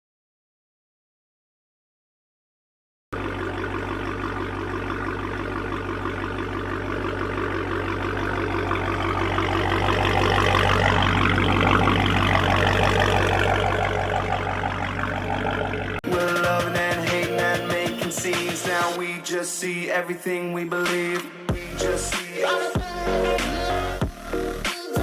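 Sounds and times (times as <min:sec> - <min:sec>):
loud car engine exhaust: 0:03.2 - 0:16.0.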